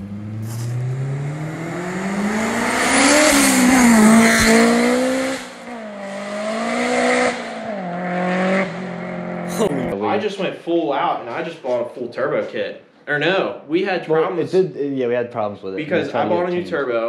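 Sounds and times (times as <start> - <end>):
car engine accelerating past: 0.0 - 10.0.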